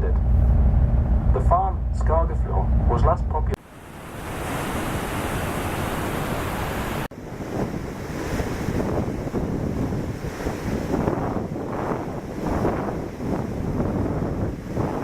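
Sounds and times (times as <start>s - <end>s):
wind gusting on microphone: 0.0s - 15.0s
waterfall rushing water: 3.6s - 7.1s.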